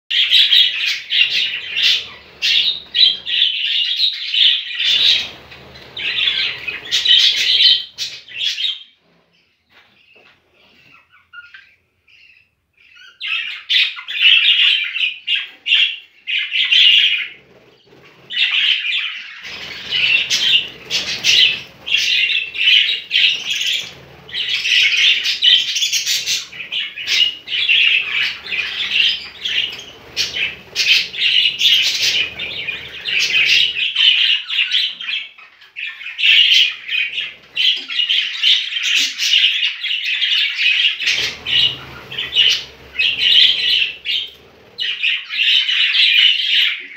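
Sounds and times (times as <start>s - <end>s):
budgerigars chattering and squawking: 0.1s - 8.9s, 10.7s - 46.9s
low rumbling noise: 4.9s - 8.4s, 19.4s - 34.0s, 41.0s - 45.2s.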